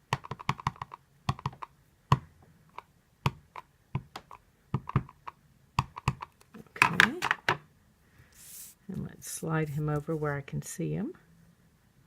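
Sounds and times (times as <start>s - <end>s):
rubber stamp tapping ink pad: 0.0s - 7.5s.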